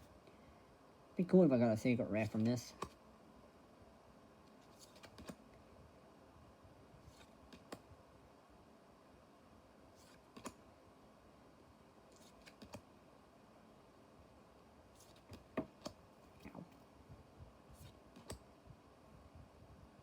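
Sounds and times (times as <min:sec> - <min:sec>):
soft clicks of cards flicked: 0:04.8 - 0:05.4, 0:07.1 - 0:07.8, 0:10.0 - 0:10.6, 0:12.2 - 0:12.9, 0:15.0 - 0:16.0, 0:17.8 - 0:18.4.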